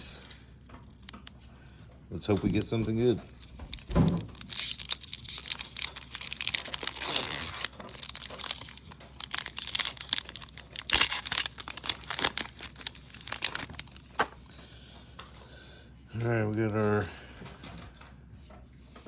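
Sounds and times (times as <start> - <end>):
foil wrapper tearing and crinkling: 3.3 - 14.4.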